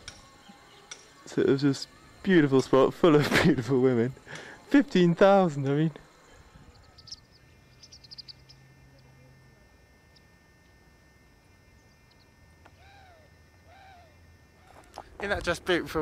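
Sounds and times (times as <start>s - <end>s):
faint high bird chirps: 0.2s - 2.5s, 6.2s - 9.3s, 10.0s - 14.9s
faint arching bird calls: 6.0s - 9.3s, 11.4s - 15.1s.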